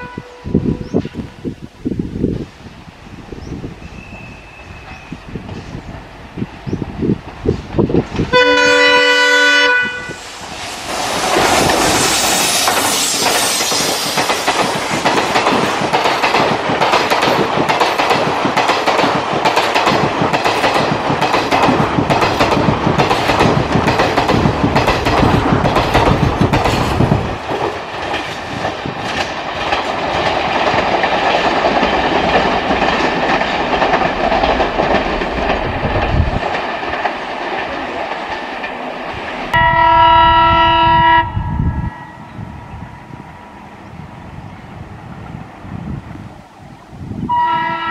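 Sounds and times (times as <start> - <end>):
locomotive horn blast: 0.0 - 0.8, 8.3 - 10.2, 39.6 - 42.2, 47.3 - 47.9
train passing close by: 0.0 - 47.9
wheels clicking over rail joints: 10.9 - 39.6.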